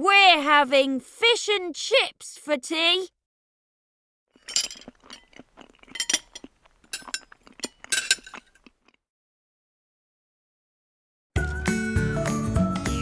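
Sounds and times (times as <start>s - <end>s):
cutlery clinking on plates: 4.4s - 8.6s.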